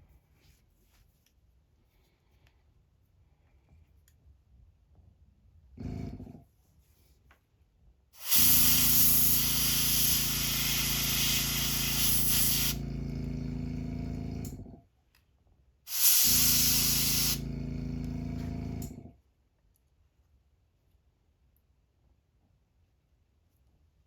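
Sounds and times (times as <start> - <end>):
airbrush spraying hiss: 8.2 - 12.8, 15.9 - 17.4
motor hum: 8.2 - 14.8, 16.1 - 19.1.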